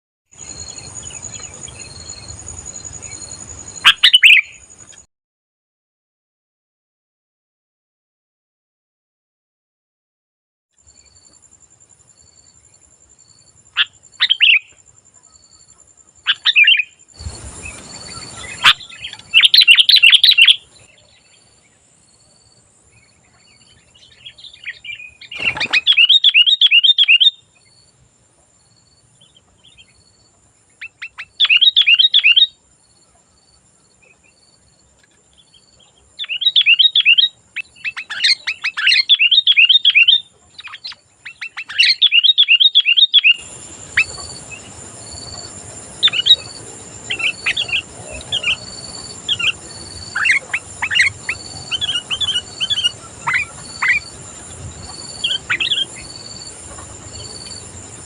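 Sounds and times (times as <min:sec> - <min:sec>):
bird chattering song: 0:00.4 - 0:05.0, 0:13.7 - 0:21.8, 0:23.0 - 0:27.9, 0:30.8 - 0:32.6, 0:35.0 - 0:58.0.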